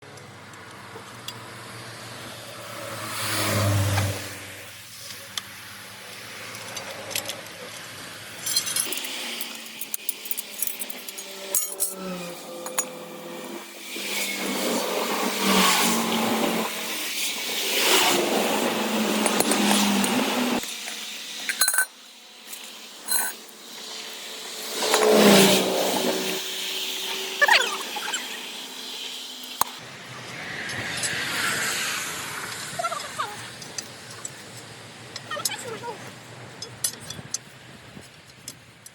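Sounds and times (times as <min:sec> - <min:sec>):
vehicles passing by: 0:00.0 - 0:22.4, 0:23.1 - 0:38.9
metallic clinks and knocks: 0:08.4 - 0:13.0, 0:21.5 - 0:21.9, 0:22.6 - 0:23.4.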